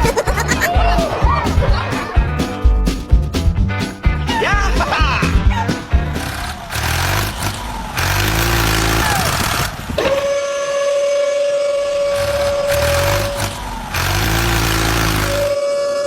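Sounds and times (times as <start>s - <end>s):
vehicle engine running: 5.0s - 10.4s, 11.9s - 15.6s.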